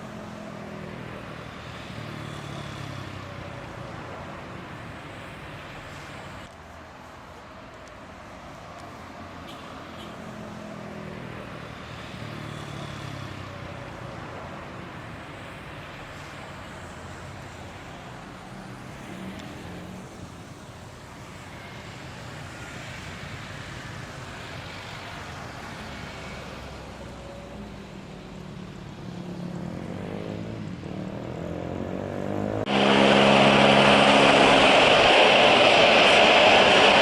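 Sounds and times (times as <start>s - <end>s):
distant engine noise: 23.2s - 37.0s
faint high whine: 32.7s - 37.0s.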